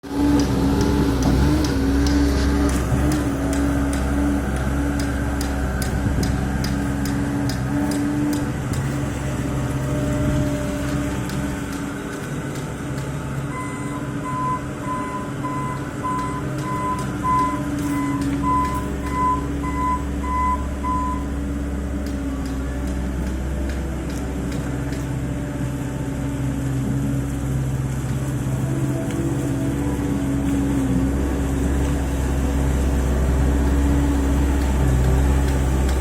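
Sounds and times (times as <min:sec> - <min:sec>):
diesel engine running: 0:00.0 - 0:36.0
reversing alarm beeping: 0:13.5 - 0:21.4.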